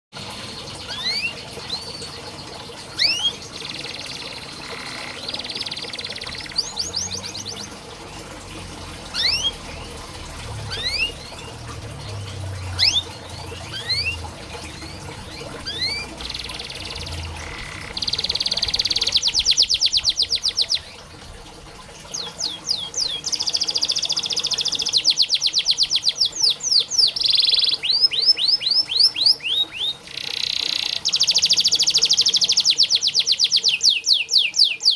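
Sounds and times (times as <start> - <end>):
canary singing trills: 0.6 - 7.8, 8.9 - 21.0, 22.1 - 34.9.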